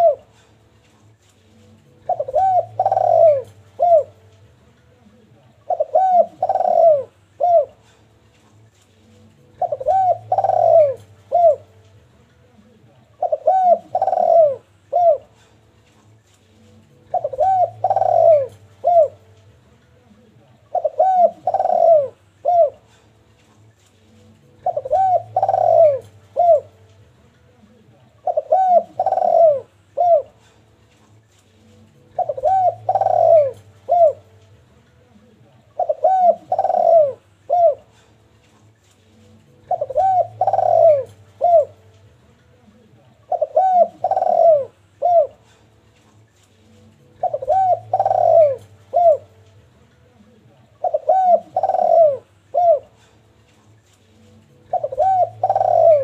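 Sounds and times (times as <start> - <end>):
dove cooing: 0.0 - 0.5, 1.9 - 4.3, 5.0 - 8.1, 9.4 - 11.8, 12.8 - 15.6, 16.9 - 19.4, 20.6 - 23.1, 24.4 - 26.9, 27.6 - 30.6, 32.0 - 34.4, 35.7 - 38.1, 39.5 - 41.9, 42.7 - 45.7, 46.9 - 49.4, 50.2 - 53.2, 54.3 - 56.0.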